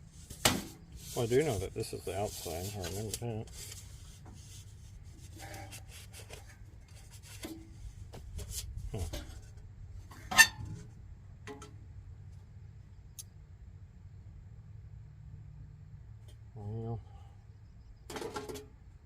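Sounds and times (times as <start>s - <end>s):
light rubbing of parts: 0.0s - 10.9s.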